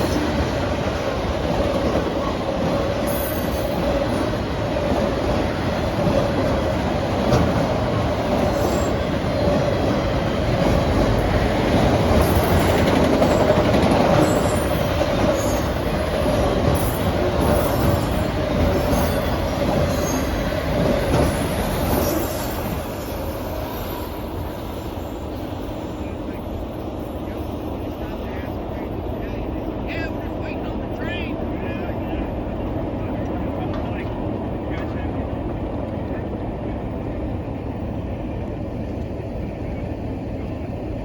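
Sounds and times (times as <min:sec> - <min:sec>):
steel wheels rumbling on rail: 0:00.0 - 0:41.0
high wheel squeals: 0:08.4 - 0:09.1, 0:12.2 - 0:15.9, 0:16.8 - 0:26.0.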